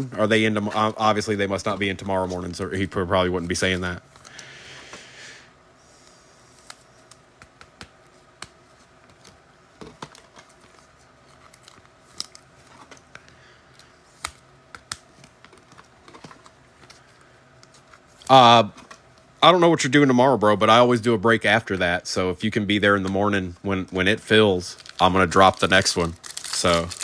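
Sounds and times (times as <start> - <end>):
trading cards clicking and tapping: 6.6 - 10.2.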